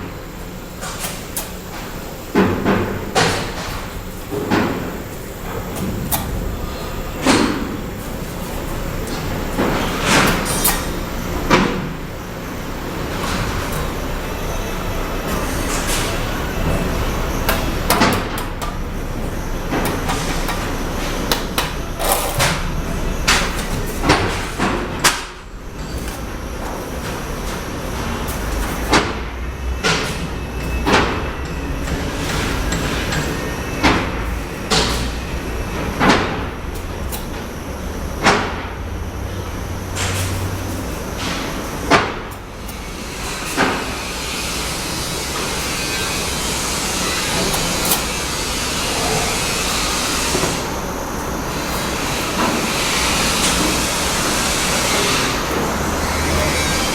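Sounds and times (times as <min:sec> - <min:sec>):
steady background noise: 0:00.0 - 0:56.9.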